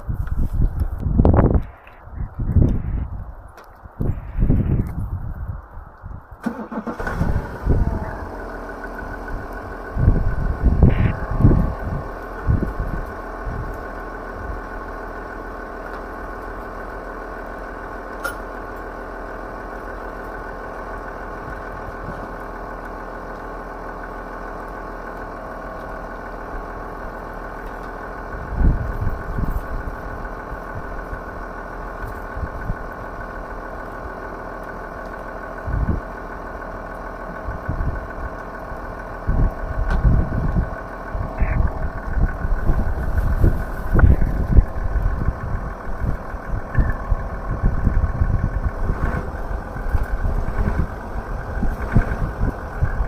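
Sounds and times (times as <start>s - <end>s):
wind buffeting microphone: 0.0s - 15.2s, 28.2s - 33.4s, 35.6s - 36.1s, 37.4s - 53.0s
drone motors humming: 0.0s - 53.0s.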